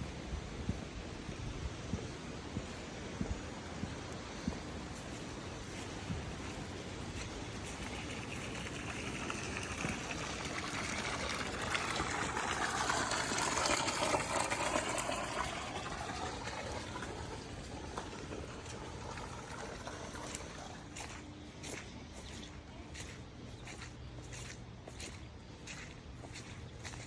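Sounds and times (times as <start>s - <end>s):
floodwater rushing: 4.6s - 21.2s.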